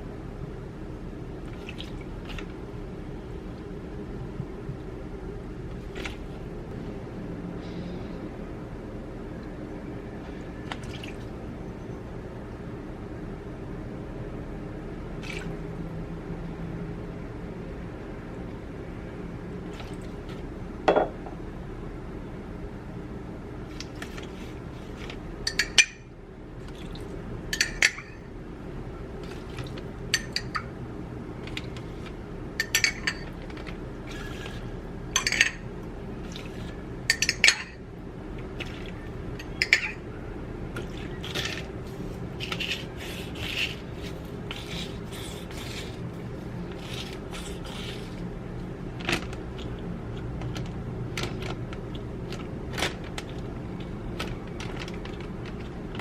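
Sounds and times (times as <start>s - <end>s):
steady low hum: 0.0s - 56.0s
utensils clinking against dishes: 25.5s - 26.1s, 27.5s - 28.2s, 30.2s - 30.7s, 32.6s - 33.6s, 35.2s - 35.6s, 37.1s - 37.8s, 39.4s - 40.0s.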